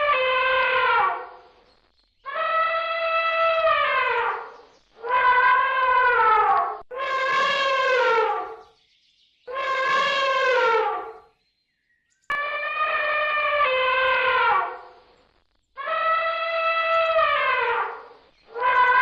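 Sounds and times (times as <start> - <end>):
animal horn-like calls: 2.3 - 8.6, 9.5 - 11.2, 12.3 - 14.9, 15.8 - 19.0.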